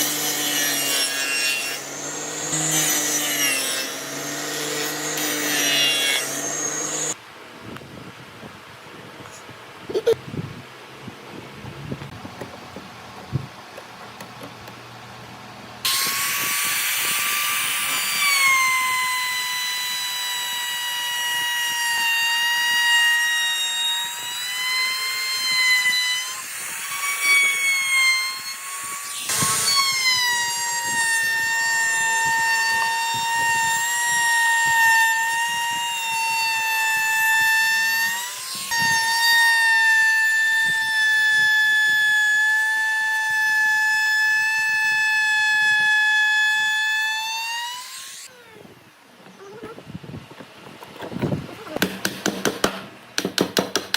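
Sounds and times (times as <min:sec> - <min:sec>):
power tool motor whine: 0:06.2 - 0:07.2.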